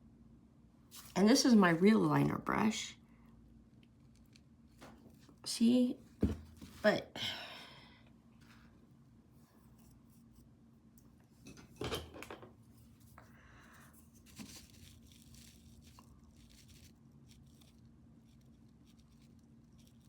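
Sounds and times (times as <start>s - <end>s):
rustling handling noises: 0.9s - 1.2s, 12.5s - 20.0s.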